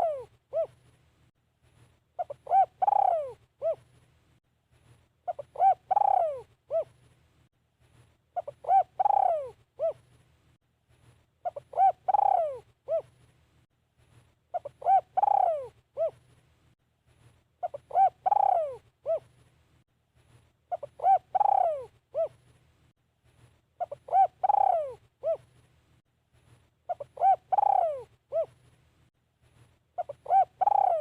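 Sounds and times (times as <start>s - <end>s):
dove cooing: 0.0s - 0.8s, 2.2s - 3.9s, 5.3s - 7.0s, 8.4s - 10.1s, 11.4s - 13.2s, 14.5s - 16.2s, 17.6s - 19.3s, 20.7s - 22.4s, 23.8s - 25.5s, 26.9s - 28.6s, 30.0s - 31.0s.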